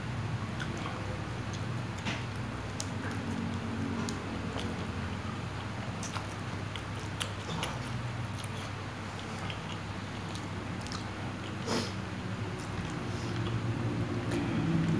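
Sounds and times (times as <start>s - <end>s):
chewing noodles: 0.4s - 14.9s
wet mouth clicks and smacks: 12.5s - 13.6s.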